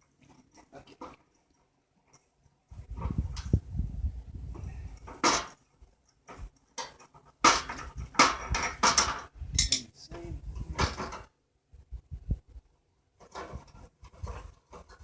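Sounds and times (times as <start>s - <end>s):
metal clattering and scraping: 4.5s - 9.9s, 10.6s - 11.3s, 13.2s - 15.0s.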